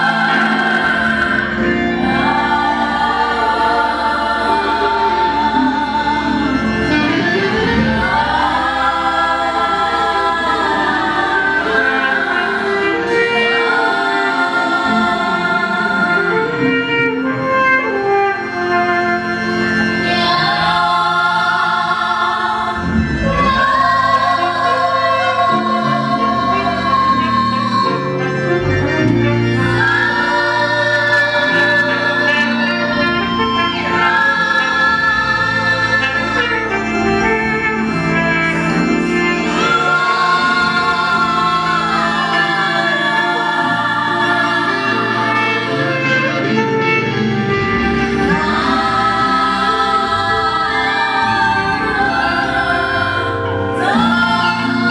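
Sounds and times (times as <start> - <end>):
choir singing gospel: 0.0 - 54.9
instrumental accompaniment: 0.0 - 54.9.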